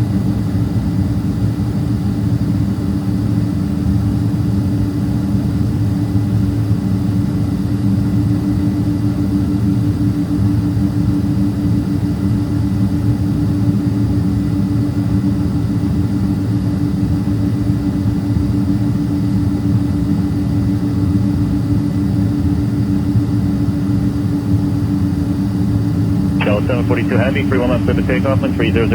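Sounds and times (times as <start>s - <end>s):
jet engines idling: 22.8s - 28.9s.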